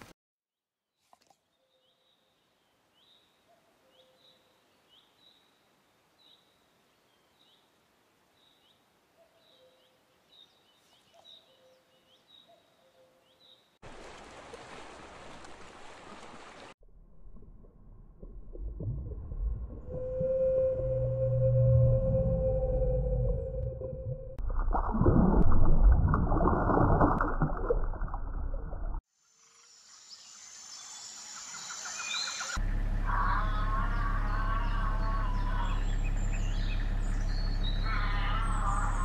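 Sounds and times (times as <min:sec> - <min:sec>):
low underwater rumble: 0:16.8 - 0:29.0
whale call: 0:19.4 - 0:24.4, 0:37.7 - 0:39.0.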